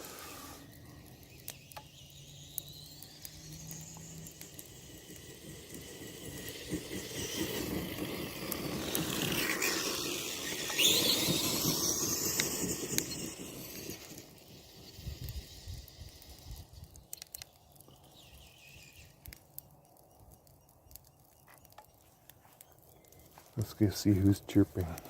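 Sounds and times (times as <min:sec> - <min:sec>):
electric motors whining: 0:00.0 - 0:19.4
tyres rolling on ground: 0:03.8 - 0:15.0.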